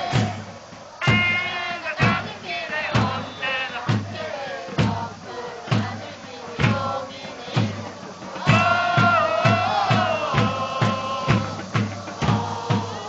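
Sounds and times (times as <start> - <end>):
bass drum beats: 0.0 - 13.0
supporters chanting in unison: 0.0 - 13.0.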